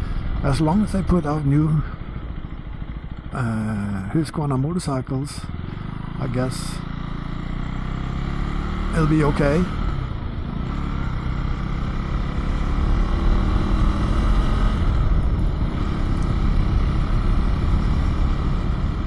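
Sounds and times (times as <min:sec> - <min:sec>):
low riding rumble: 0:00.0 - 0:07.3, 0:08.9 - 0:19.0
motorcycle engine running: 0:00.0 - 0:19.0.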